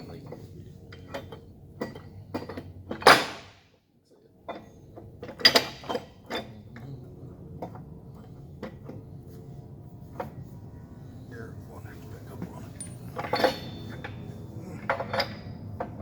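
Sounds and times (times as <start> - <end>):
steel parts clanking: 4.4 - 9.1, 12.1 - 16.0
metal scraping: 8.1 - 16.0.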